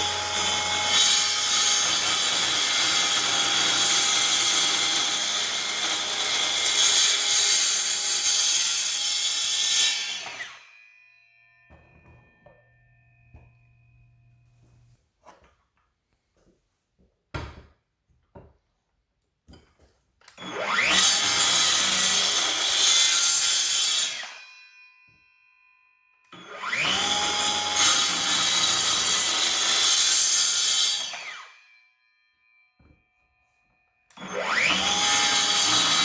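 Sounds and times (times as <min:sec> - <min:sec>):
circular saw cutting wood: 0:00.0 - 0:10.8, 0:20.4 - 0:24.5, 0:26.3 - 0:31.7, 0:34.1 - 0:36.0.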